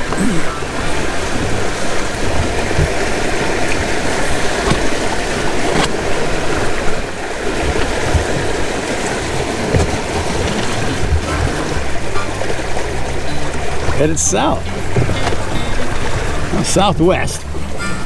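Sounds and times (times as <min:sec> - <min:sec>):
water rushing along hulls: 0:00.0 - 0:18.0
sharp knocks on hull: 0:01.0 - 0:03.8, 0:07.6 - 0:08.7.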